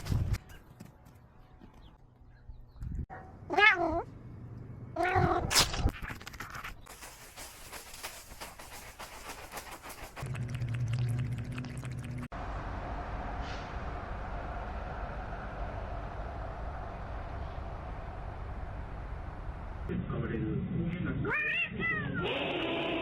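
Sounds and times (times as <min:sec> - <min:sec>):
cat meowing: 0:03.5 - 0:04.1.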